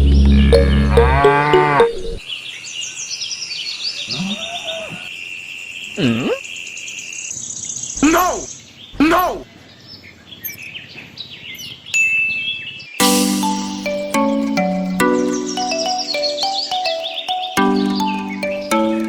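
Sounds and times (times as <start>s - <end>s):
cattle mooing: 0.6s - 2.0s
high bird or insect chirping: 2.2s - 9.0s, 11.5s - 19.0s.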